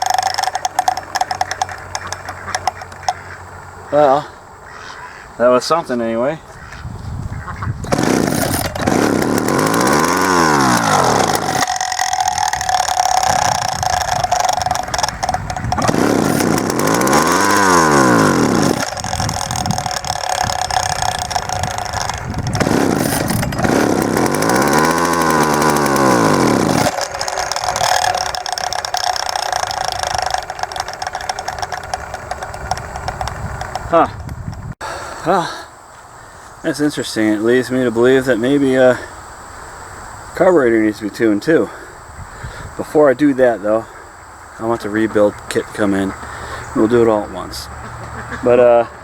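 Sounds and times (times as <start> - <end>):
chainsaw engine revving: 0.0 - 3.1, 7.8 - 34.2.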